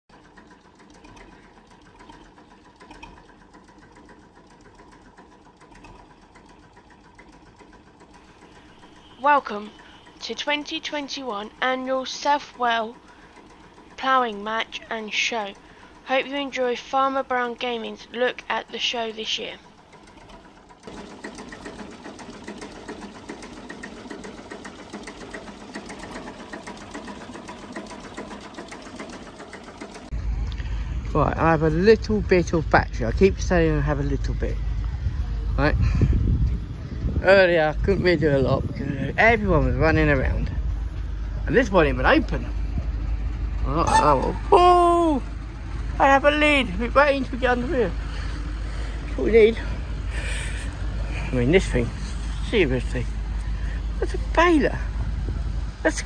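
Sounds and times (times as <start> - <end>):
small machine ticking clatter: 0.1 - 30.2.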